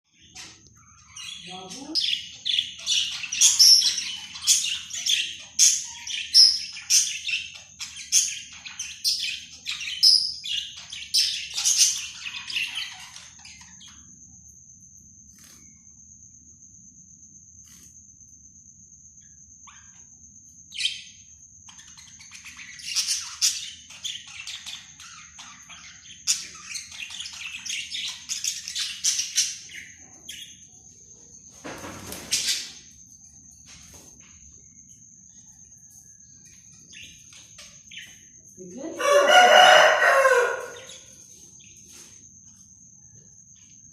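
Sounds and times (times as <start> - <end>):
budgerigars chirping and chattering: 0.2 - 14.0, 20.8 - 30.7, 36.7 - 42.1.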